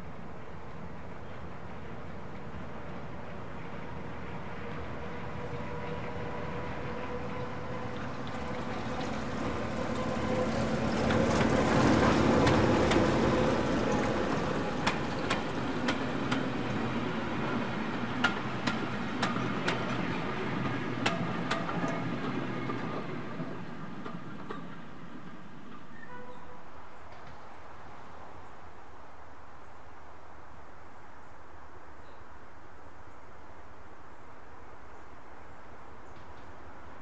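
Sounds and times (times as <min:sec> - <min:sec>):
diesel train passing: 0:00.0 - 0:29.4
wheels clicking over rail joints: 0:07.3 - 0:26.4.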